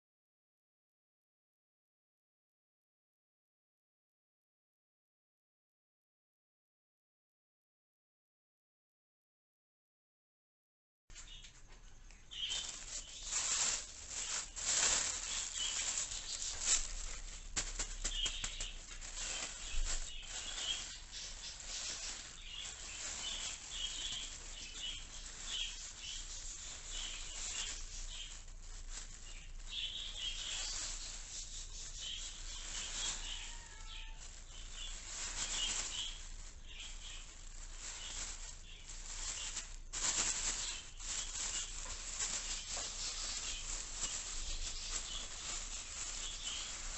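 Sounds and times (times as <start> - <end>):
plastic bags rustling: 11.2 - 46.9
budgies chirping: 12.1 - 17.0, 18.0 - 39.7, 40.3 - 46.9.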